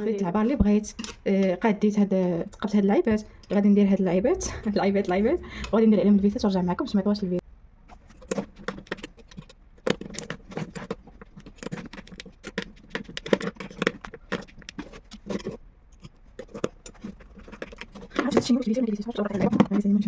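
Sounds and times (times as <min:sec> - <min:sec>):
light taps clicks and scrapes: 0:07.9 - 0:19.9.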